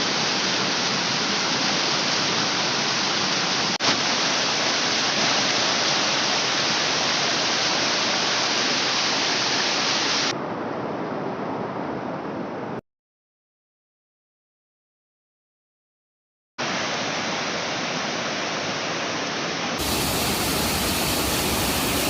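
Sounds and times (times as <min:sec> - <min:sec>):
waterfall rushing: 0:00.0 - 0:10.3, 0:16.6 - 0:22.0.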